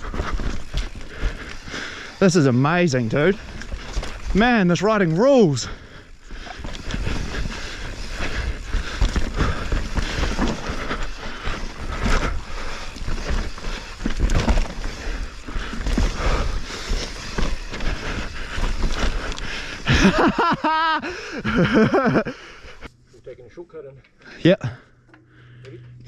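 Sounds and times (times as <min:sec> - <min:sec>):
bike knocking and rattling: 0:00.0 - 0:22.3
bike tyres on dirt: 0:00.0 - 0:22.9.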